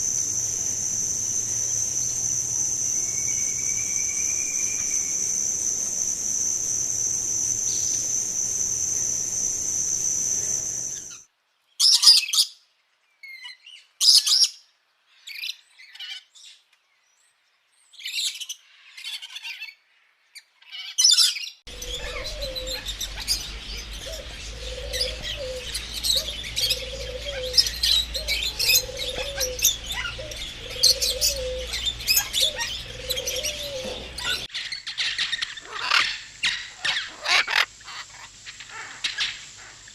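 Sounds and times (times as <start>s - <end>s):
birds chirping: 0.0s - 11.2s, 21.4s - 39.8s
cricket trilling: 0.0s - 11.2s, 21.7s - 34.5s.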